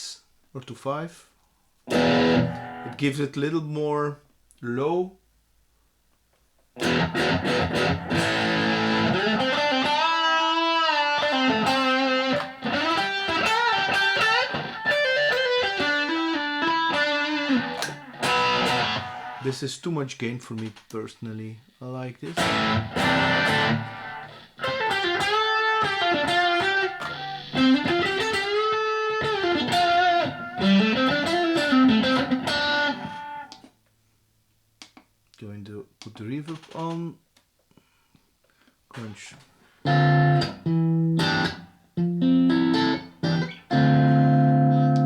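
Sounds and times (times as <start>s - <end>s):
distorted electric guitar: 1.9s - 3.0s, 6.8s - 19.5s, 22.3s - 33.6s, 39.9s - 45.0s.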